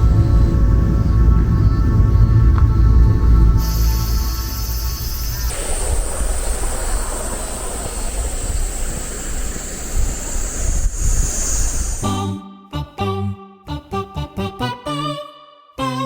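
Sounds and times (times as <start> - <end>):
cicadas singing: 0.0 - 12.4
wind buffeting microphone: 5.4 - 12.1.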